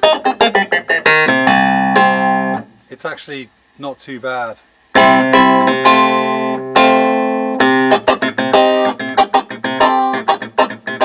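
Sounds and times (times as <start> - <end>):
electric keyboard chords and notes: 0.0 - 2.7, 5.0 - 11.0.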